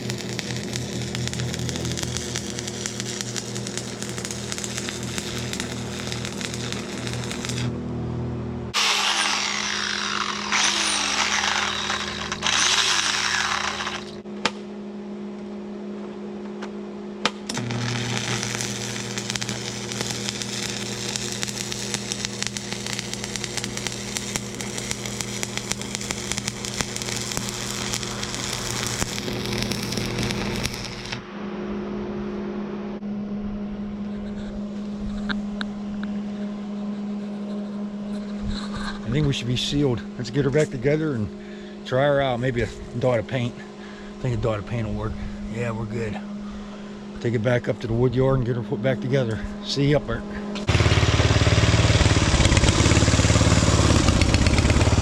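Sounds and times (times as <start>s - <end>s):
power tool working on steel: 0.0s - 7.8s, 8.7s - 14.2s, 17.5s - 31.2s, 50.6s - 55.0s
electrical hum: 0.0s - 55.0s.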